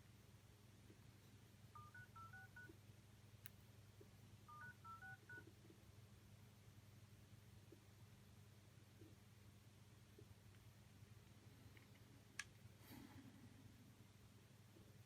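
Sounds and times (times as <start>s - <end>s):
faint keypad beeps: 1.8s - 2.7s, 4.5s - 5.5s.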